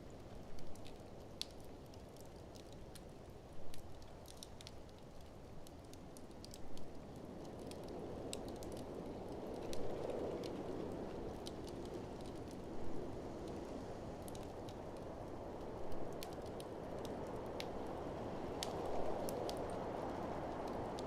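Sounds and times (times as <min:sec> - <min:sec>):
wood fire crackling and popping: 0:00.1 - 0:21.0.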